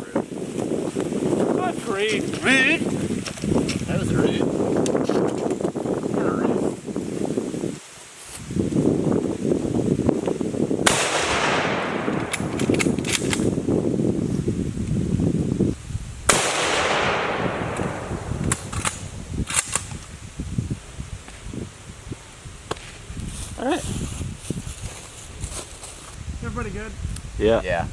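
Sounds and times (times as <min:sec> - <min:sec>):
gunshots with echo: 0:10.8 - 0:12.8, 0:16.3 - 0:19.1
sharp clicks: 0:17.7 - 0:20.1.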